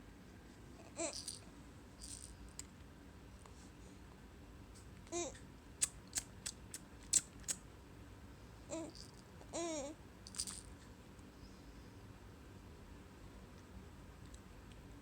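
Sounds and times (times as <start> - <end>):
child babbling: 0.8 - 1.3, 5.1 - 5.4, 8.7 - 10.0.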